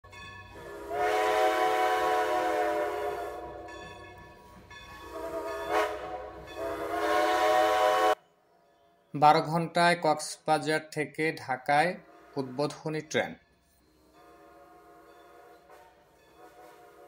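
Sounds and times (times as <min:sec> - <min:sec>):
train horn blasts: 0:00.5 - 0:03.8, 0:05.0 - 0:08.2, 0:12.0 - 0:12.5, 0:14.2 - 0:17.0.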